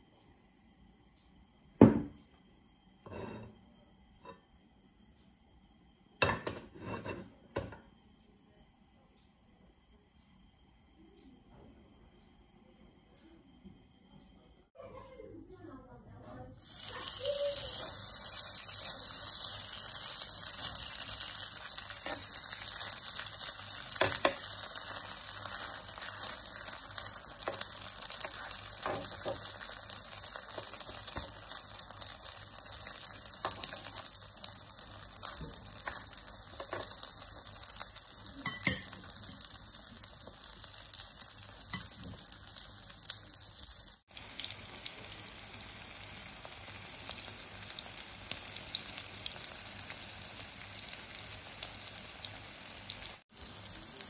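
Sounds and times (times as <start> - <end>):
patties sizzling in oil: 16.6 - 54.0.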